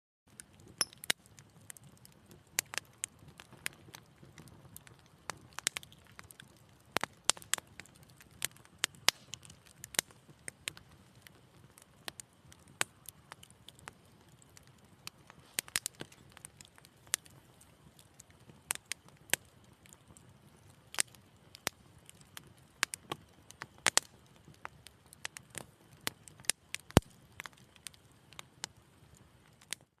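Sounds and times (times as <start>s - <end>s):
fire crackling and popping: 0.3s - 30.0s
low rush of flame: 0.4s - 29.7s.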